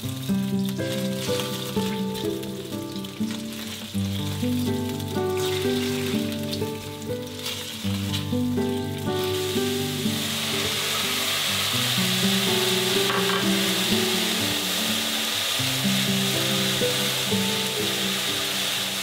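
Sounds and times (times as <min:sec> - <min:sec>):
background music: 0:00.0 - 0:19.0
food sizzling in a frying pan: 0:00.0 - 0:19.0.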